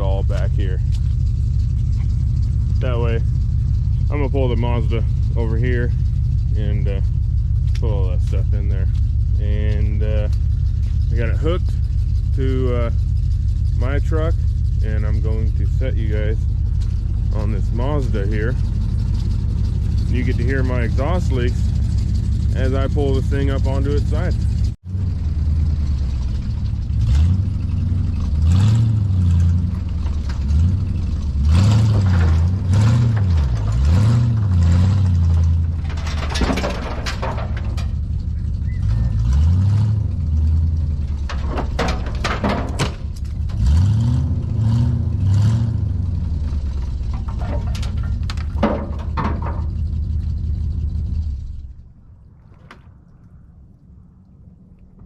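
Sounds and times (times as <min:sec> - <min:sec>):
pickup truck engine revving: 0:00.0 - 0:51.7
exhaust rasp: 0:00.0 - 0:52.9
sharp metal clanks and knocks: 0:29.0 - 0:44.0, 0:46.5 - 0:50.0.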